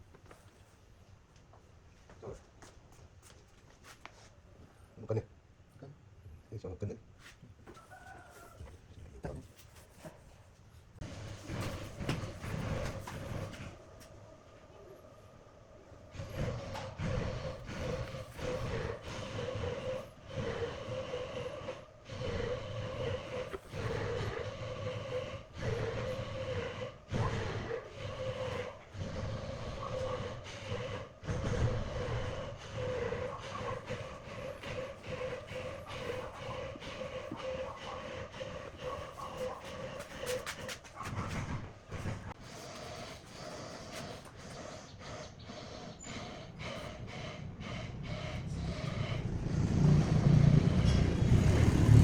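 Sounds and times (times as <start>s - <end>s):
power tool humming: 48.6s - 52.0s.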